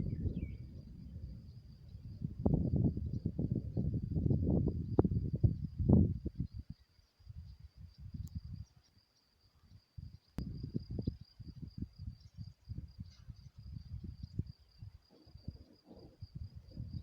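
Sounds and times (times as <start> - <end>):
wind gusts on microphone: 0.0 - 8.8, 9.7 - 17.0
insect trilling: 14.6 - 17.0.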